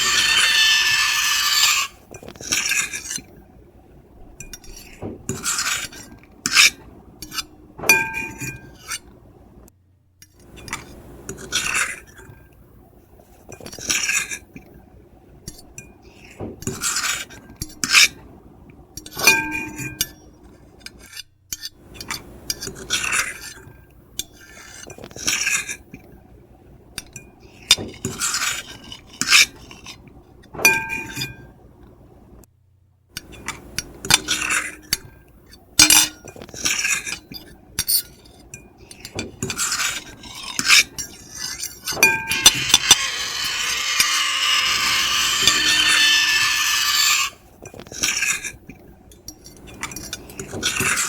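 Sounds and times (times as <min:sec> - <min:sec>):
high-pitched squeal: 0:00.0 - 0:02.0, 0:42.2 - 0:47.4
cutlery scraping a plate: 0:00.0 - 0:03.3, 0:04.4 - 0:09.1, 0:15.4 - 0:18.2, 0:19.0 - 0:26.1, 0:27.0 - 0:30.0, 0:30.6 - 0:31.5, 0:33.2 - 0:35.2, 0:35.8 - 0:51.0.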